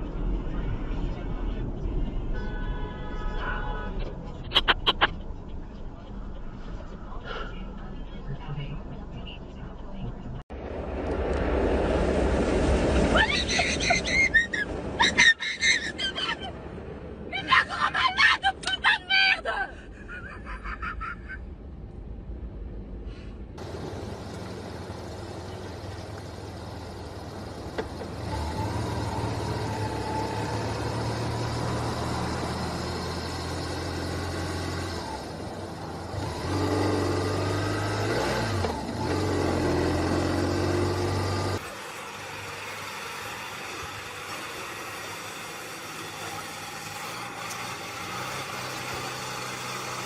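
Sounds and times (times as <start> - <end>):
road noise: 0.0 - 50.0
vehicle engine running: 23.6 - 50.0.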